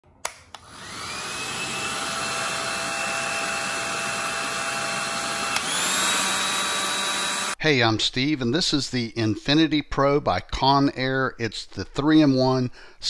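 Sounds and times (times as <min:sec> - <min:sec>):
hair dryer running: 0:00.5 - 0:07.6.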